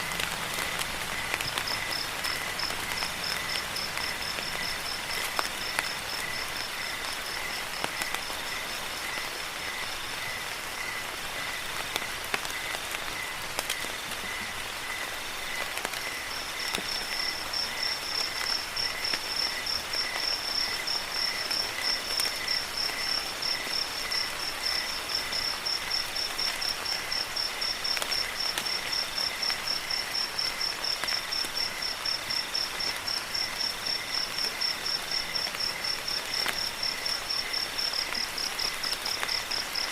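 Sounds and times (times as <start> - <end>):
crickets chirping: 0.0 - 39.9
rain falling: 0.0 - 39.9.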